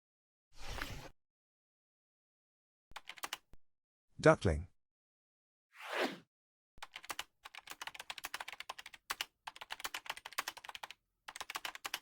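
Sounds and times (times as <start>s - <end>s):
computer keyboard typing: 3.0s - 3.4s, 6.8s - 12.0s.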